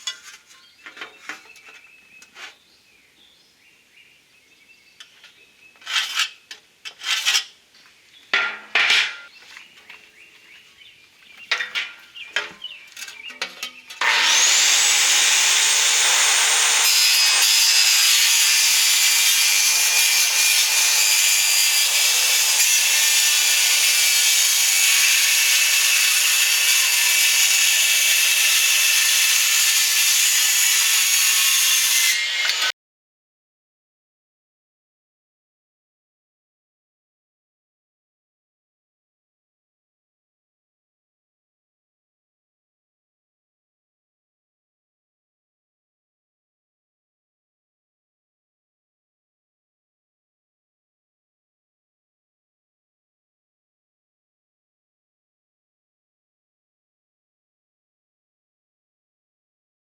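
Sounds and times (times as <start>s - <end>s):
metal clanks and scrapes: 0.0s - 2.6s, 5.2s - 7.6s, 8.4s - 9.4s, 11.5s - 14.1s
power tool cutting aluminum sheet: 13.6s - 32.7s.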